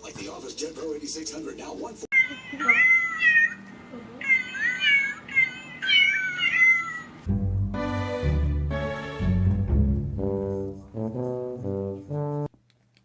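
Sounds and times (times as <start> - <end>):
cat meowing: 2.1 - 7.2
brass music: 7.3 - 12.5.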